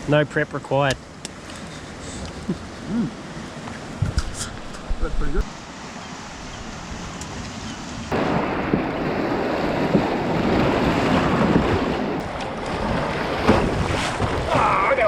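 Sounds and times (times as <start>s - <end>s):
sea waves washing: 0.0s - 15.0s
wind buffeting microphone: 2.3s - 5.5s, 6.3s - 15.0s.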